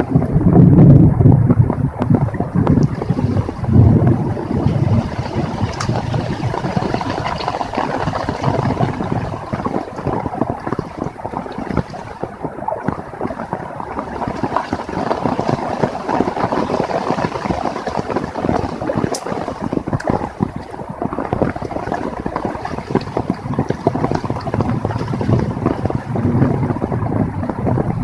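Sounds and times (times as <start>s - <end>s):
heavy rain falling: 0.0s - 28.0s
wind: 0.0s - 28.0s.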